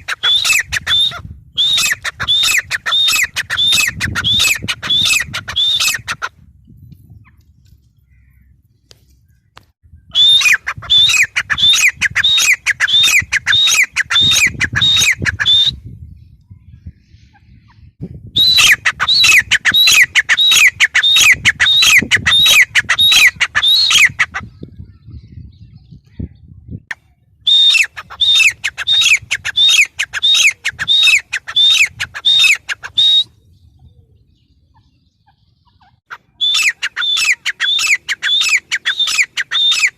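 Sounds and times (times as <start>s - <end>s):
francolin shrill calls: 0.0s - 6.3s, 10.1s - 15.8s, 18.4s - 24.3s, 27.5s - 33.3s, 34.7s - 39.9s.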